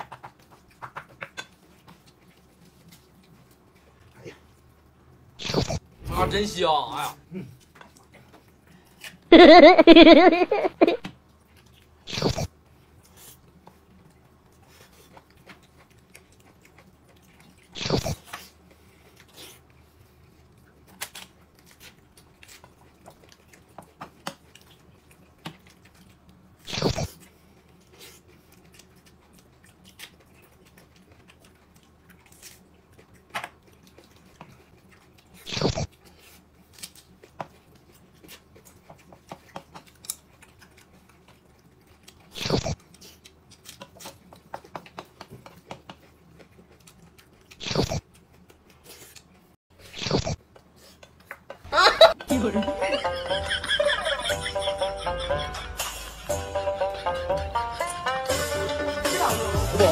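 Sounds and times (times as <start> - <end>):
person chewing: 0.0 - 4.8, 5.4 - 6.1, 7.4 - 9.4, 10.8 - 51.6
loud short eating noises: 12.1 - 13.4, 14.7 - 31.4, 32.1 - 51.2.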